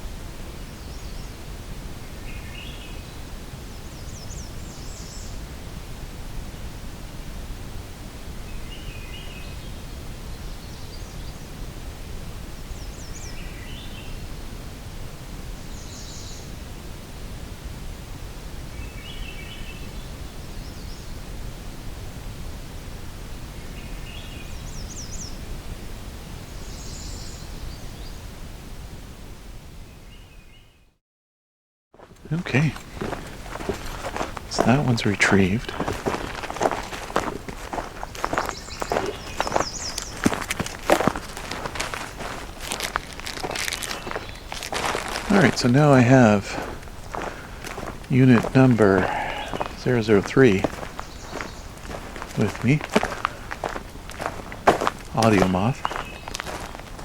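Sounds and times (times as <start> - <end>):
distant birds singing: 0.0 - 5.4, 8.4 - 11.6, 12.6 - 14.4, 15.5 - 17.5, 18.7 - 21.4, 23.2 - 28.3, 32.0 - 57.0
faint songbird song: 0.0 - 5.6, 6.4 - 14.7, 15.4 - 17.6, 18.2 - 21.6, 22.8 - 28.4, 29.8 - 31.0, 32.0 - 57.0
low background noise: 0.0 - 30.8, 32.0 - 57.0
outdoor background hiss: 0.0 - 30.8, 32.0 - 57.0.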